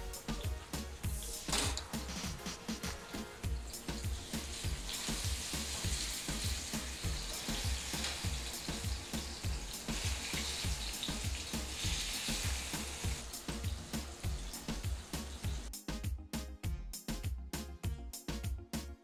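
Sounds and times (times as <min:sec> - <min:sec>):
plantain sizzling in hot oil: 0:00.0 - 0:15.7
background music with low beat: 0:00.0 - 0:19.0.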